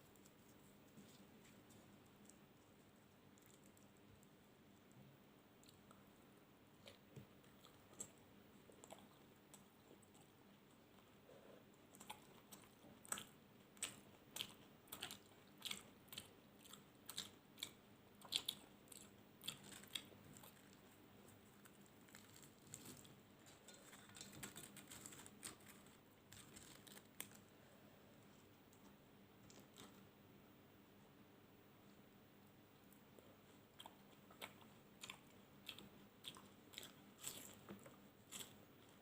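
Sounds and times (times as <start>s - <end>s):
chewing and biting food: 6.8s - 11.1s, 11.8s - 27.4s, 33.4s - 39.0s.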